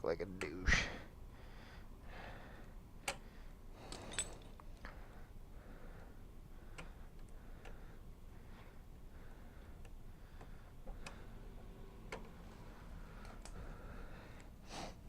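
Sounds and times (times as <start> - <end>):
small metal parts clicking: 3.8 - 5.0.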